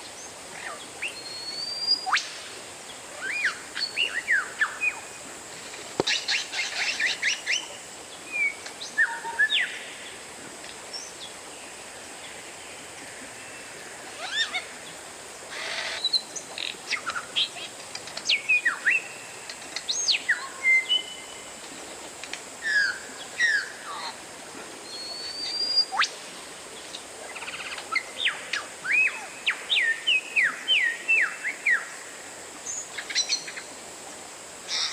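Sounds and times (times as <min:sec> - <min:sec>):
bird singing whistled notes: 0:01.0 - 0:02.3
bird harsh hiss-like note: 0:15.5 - 0:16.1.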